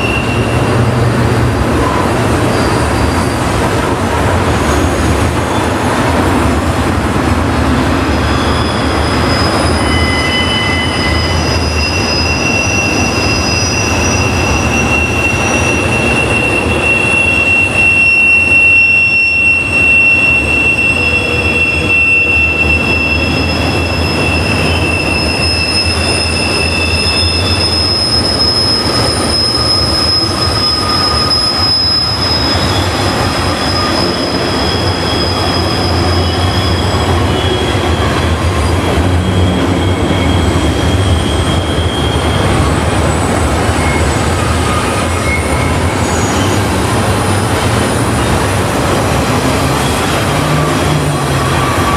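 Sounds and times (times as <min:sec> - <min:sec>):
train wheels squealing: 0:00.0 - 0:06.2, 0:07.9 - 0:51.9
low rumble of rolling freight cars: 0:00.0 - 0:51.9.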